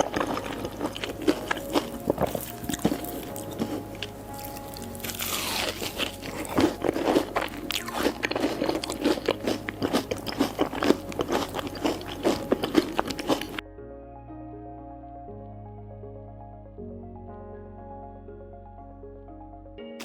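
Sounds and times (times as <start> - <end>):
crunching and chewing food: 0.0 - 13.6
soft background music: 0.0 - 20.0.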